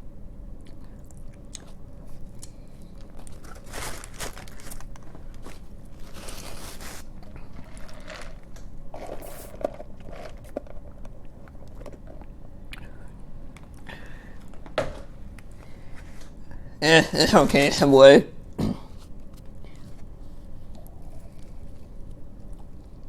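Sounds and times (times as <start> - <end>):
person chewing food: 0.6 - 14.6, 18.8 - 23.0.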